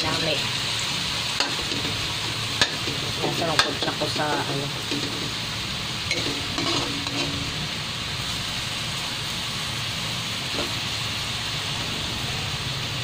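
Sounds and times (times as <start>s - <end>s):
chicken sizzling in a metal pot: 0.0s - 13.0s
metal ladle scraping and clinking: 6.1s - 7.7s.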